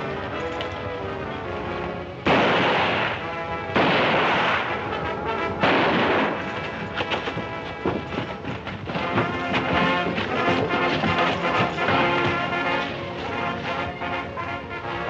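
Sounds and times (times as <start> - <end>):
film score music: 0.0 - 15.0
gunshots: 2.2 - 14.1.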